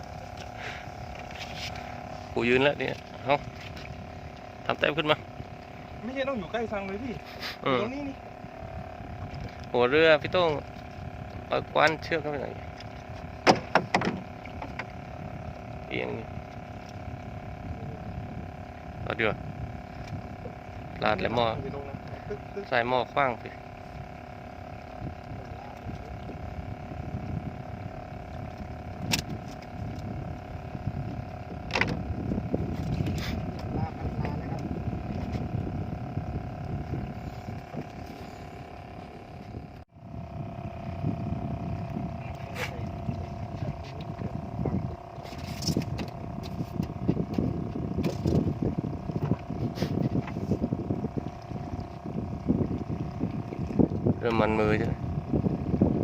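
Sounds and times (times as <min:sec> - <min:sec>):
boat engine running: 0:00.0 - 0:56.0
wind and water rumble: 0:00.0 - 0:56.0
sharp knocks: 0:13.4 - 0:14.2.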